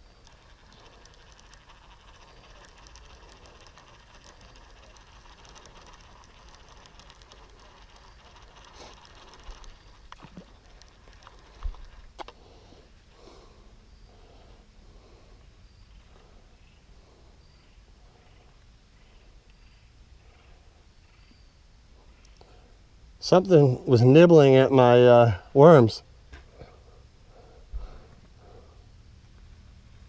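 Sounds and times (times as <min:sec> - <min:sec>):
fishing reel ticking: 0:00.0 - 0:12.6, 0:22.1 - 0:22.6.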